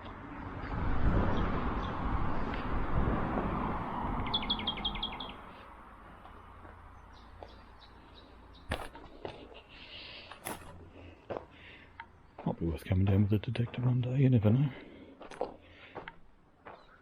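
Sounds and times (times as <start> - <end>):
faint bird chirps: 4.2 - 5.4.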